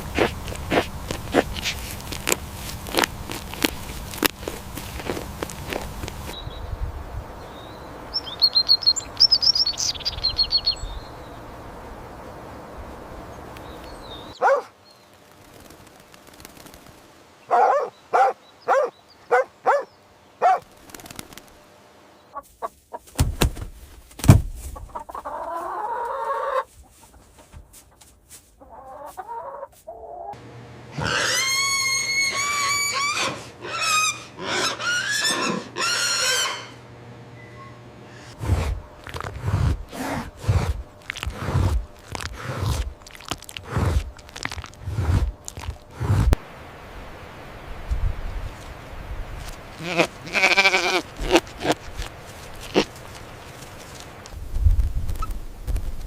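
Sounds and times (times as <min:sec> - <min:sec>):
chickens clucking: 0:24.7 - 0:36.9
chickens wavering calls: 0:24.8 - 0:27.2, 0:28.6 - 0:37.0.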